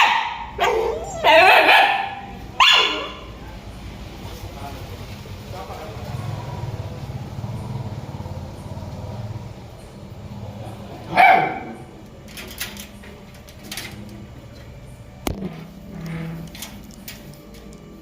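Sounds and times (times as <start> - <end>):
dog barking: 0.0 - 3.3, 11.1 - 11.9.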